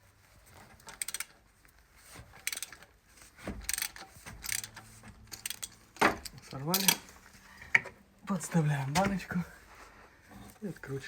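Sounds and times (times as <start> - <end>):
wrench clicking and ratcheting: 0.8 - 1.4, 2.4 - 2.9, 3.6 - 7.0.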